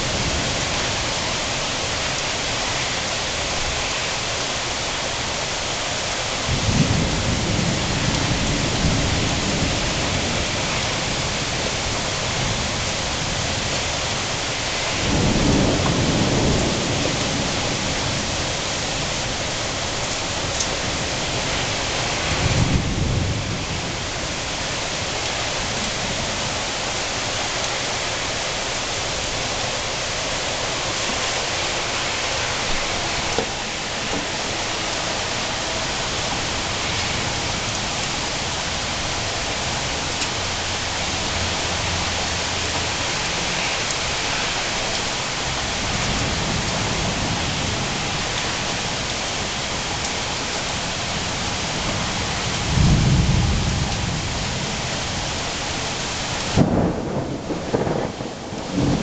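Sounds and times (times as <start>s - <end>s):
steady rain: 0.0s - 59.0s
low rolls of thunder: 6.5s - 12.6s, 15.0s - 18.6s, 22.3s - 24.1s, 51.9s - 54.8s, 56.5s - 59.0s.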